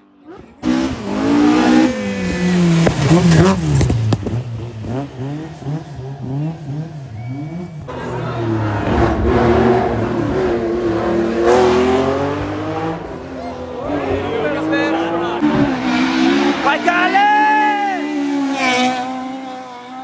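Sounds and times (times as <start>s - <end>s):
car approaching: 0.0s - 20.0s
rally car engine revving: 0.2s - 20.0s
exhaust cracks: 0.4s - 17.3s.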